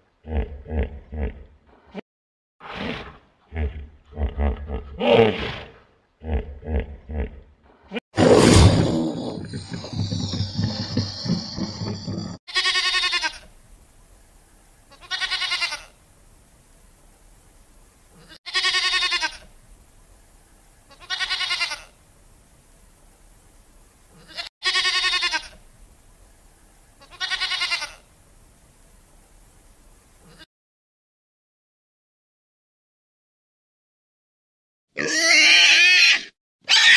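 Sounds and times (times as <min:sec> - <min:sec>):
low rumbling growl: 0:08.2 - 0:12.4
goat bleating: 0:12.1 - 0:13.5, 0:14.9 - 0:16.0, 0:18.2 - 0:19.5, 0:20.9 - 0:22.0, 0:24.2 - 0:25.6, 0:27.0 - 0:28.1, 0:35.0 - 0:36.9.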